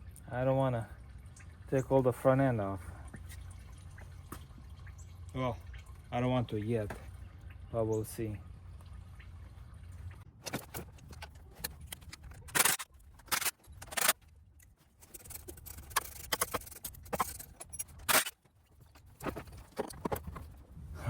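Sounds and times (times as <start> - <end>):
metal tools clinking and scraping: 10.4 - 20.6.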